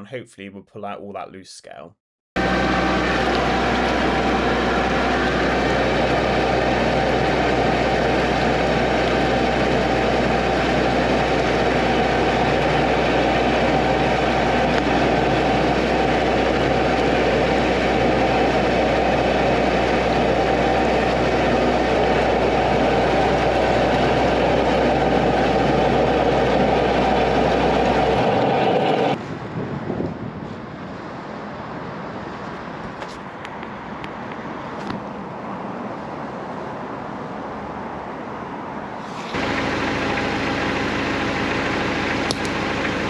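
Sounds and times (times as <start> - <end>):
drain jetter pump and water jet: 2.4 - 29.2, 39.0 - 43.0.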